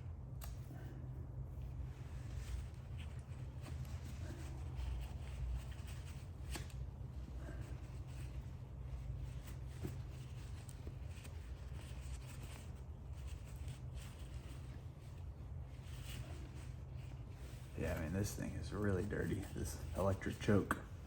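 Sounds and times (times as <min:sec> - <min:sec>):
steady low hum: 0:00.0 - 0:21.0
paper towel rustling and rubbing: 0:01.5 - 0:21.0.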